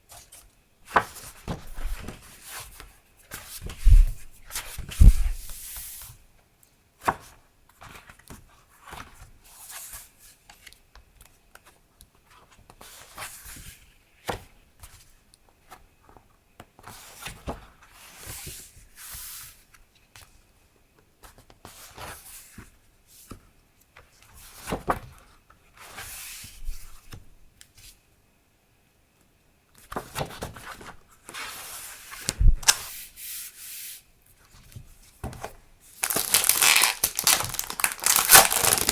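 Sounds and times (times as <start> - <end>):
paper rubbing and sliding: 3.6 - 6.0.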